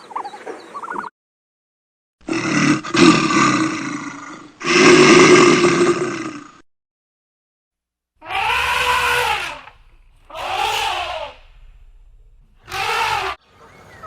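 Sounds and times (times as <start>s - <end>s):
animal calling: 8.2s - 14.0s.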